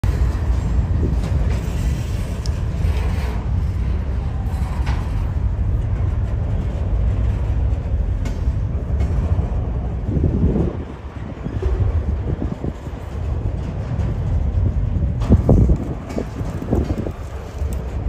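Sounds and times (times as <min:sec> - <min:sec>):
freight train rumbling past: 0:00.0 - 0:18.0
running gear clicks: 0:15.3 - 0:18.0.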